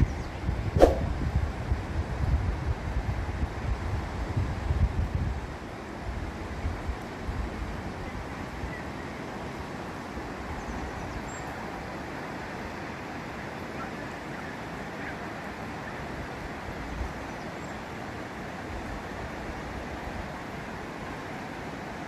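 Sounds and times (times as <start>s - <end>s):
wind rumbling on microphone: 0.0s - 11.8s
rushing wind: 0.0s - 13.6s.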